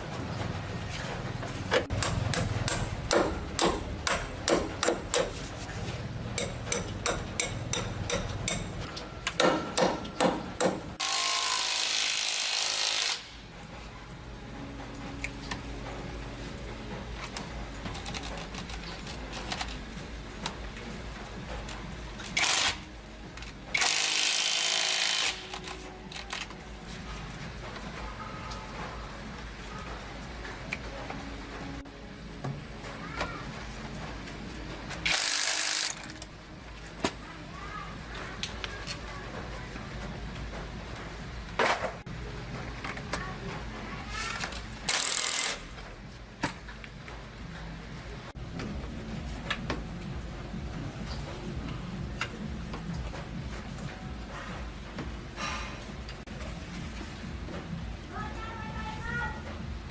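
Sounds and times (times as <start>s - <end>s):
sharp tool strikes: 1.9s - 5.4s.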